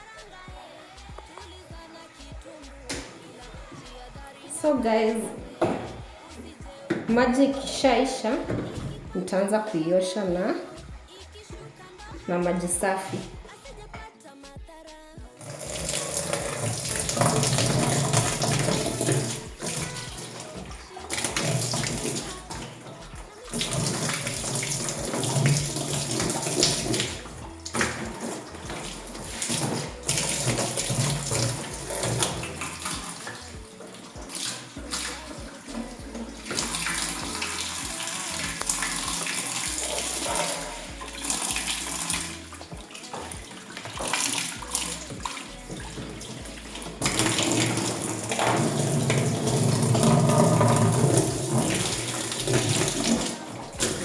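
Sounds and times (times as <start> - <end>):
water splashing in washing tub: 0.0 - 14.1, 15.2 - 54.0.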